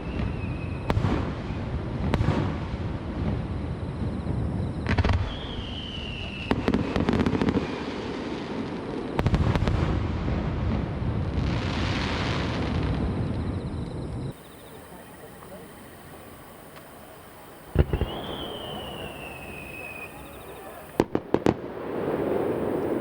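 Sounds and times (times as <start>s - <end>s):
falling firework whistle: 0.0s - 1.1s, 4.8s - 7.9s, 14.3s - 23.0s
fireworks bursting with echo: 4.2s - 13.4s, 14.3s - 23.0s
hissing crackle: 14.0s - 23.0s.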